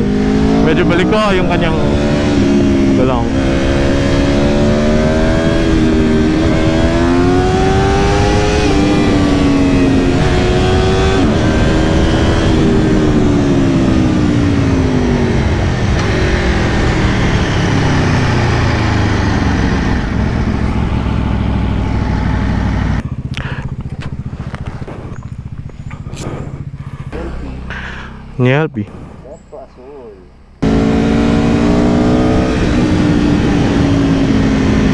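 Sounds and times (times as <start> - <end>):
motorcycle engine revving: 0.0 - 34.9
wind rushing: 24.2 - 34.9.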